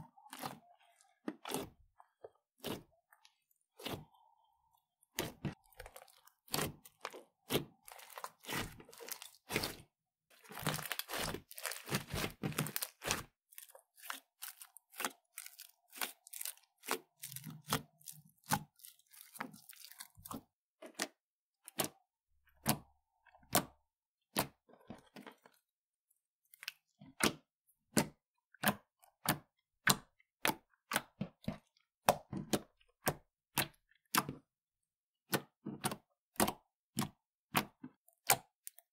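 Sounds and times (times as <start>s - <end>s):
slime crackling and popping: 5.6s - 20.3s.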